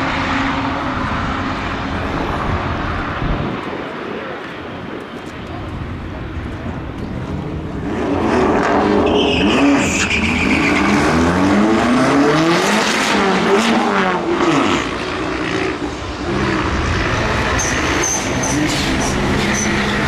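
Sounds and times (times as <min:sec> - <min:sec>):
drag cars accelerating: 0:05.4 - 0:20.0
high squeal: 0:09.0 - 0:11.2, 0:17.5 - 0:20.0.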